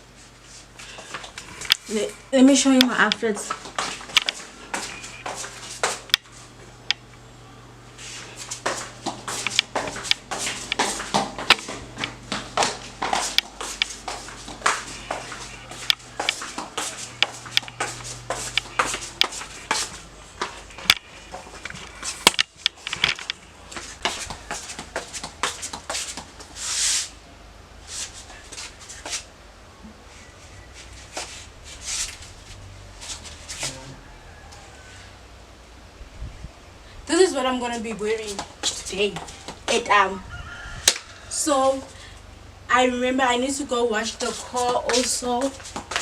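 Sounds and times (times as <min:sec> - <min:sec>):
clothes rustling: 0:00.0 - 0:06.8, 0:07.9 - 0:27.2, 0:30.0 - 0:34.0, 0:43.5 - 0:46.0.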